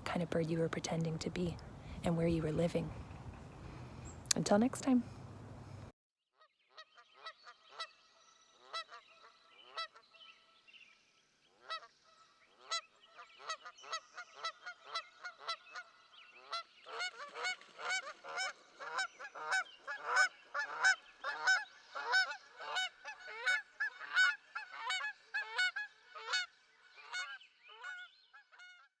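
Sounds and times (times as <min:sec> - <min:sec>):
geese honking: 0:16.5 - 0:28.7.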